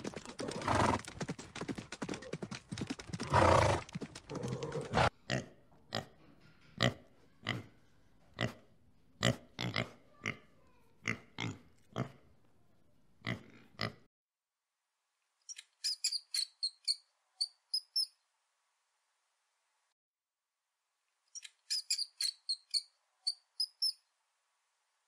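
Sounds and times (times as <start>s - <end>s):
pig grunting: 3.3s - 6.1s, 9.2s - 12.2s
high-pitched mouse squeaks: 15.5s - 18.1s, 21.4s - 24.0s.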